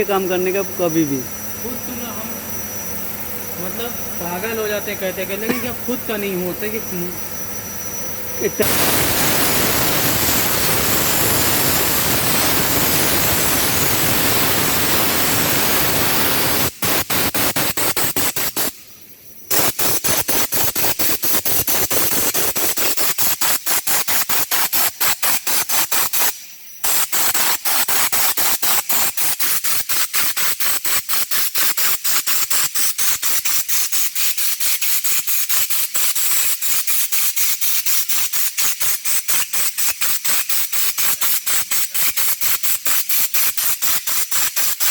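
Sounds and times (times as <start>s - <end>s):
spray gun hissing: 8.4s - 18.8s, 19.5s - 44.9s.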